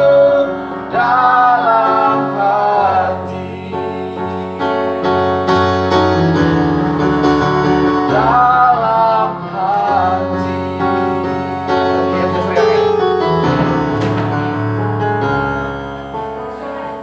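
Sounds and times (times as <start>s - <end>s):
keyboard chords: 0.0s - 17.0s.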